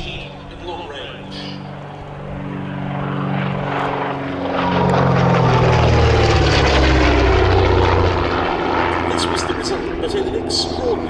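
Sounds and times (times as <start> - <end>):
propeller plane flying past: 0.0 - 11.0.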